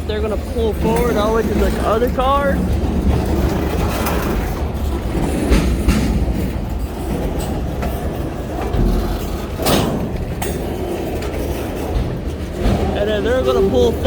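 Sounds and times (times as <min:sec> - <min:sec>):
diesel locomotives rumbling: 0:00.0 - 0:14.0
sharp train clanks: 0:00.0 - 0:14.0.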